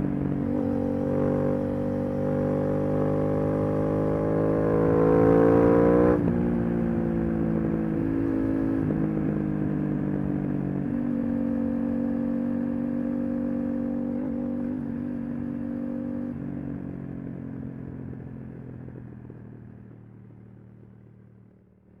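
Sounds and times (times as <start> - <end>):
motorcycle engine revving: 0.1 - 6.3.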